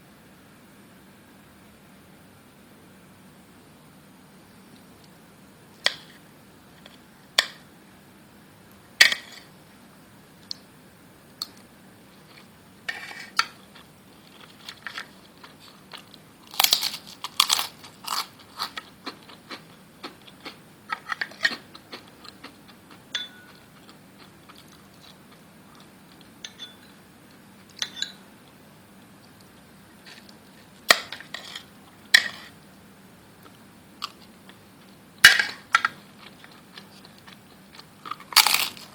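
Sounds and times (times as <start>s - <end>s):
dishes and utensils clinking: 23.2s - 23.6s, 26.4s - 26.9s, 27.8s - 28.2s.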